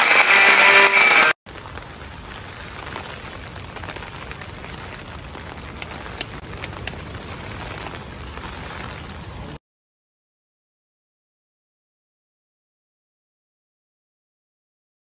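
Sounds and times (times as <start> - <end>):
light rain on a tent: 0.0 - 9.6.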